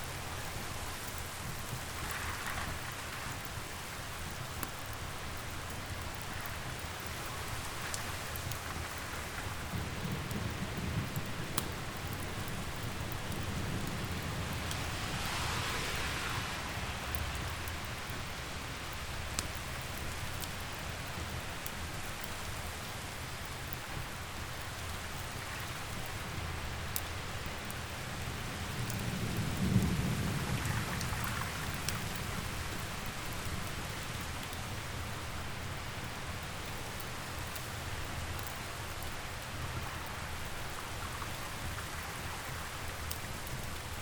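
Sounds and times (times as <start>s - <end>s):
steady rain: 0.0s - 44.0s
wood fire crackling: 0.0s - 44.0s
thunder rolling: 29.0s - 32.6s.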